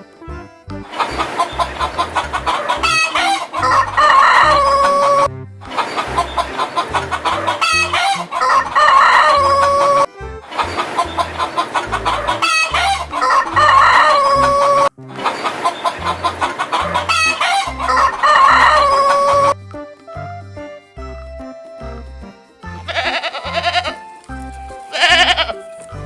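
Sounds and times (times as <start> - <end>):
chickens clucking: 0.8 - 19.6
rooster crowing: 1.0 - 19.6.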